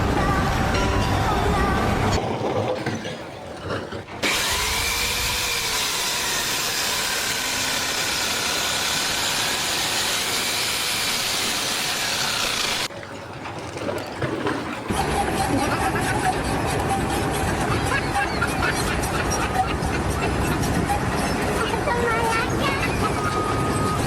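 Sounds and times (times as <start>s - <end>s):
power tool running: 4.2s - 12.9s.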